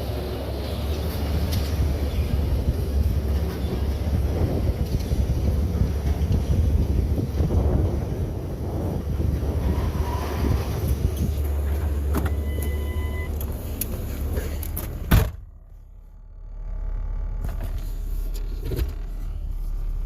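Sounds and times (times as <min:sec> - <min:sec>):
car low rumble: 0:00.0 - 0:20.0
low hum: 0:00.0 - 0:20.0
loud thump: 0:15.1 - 0:15.5.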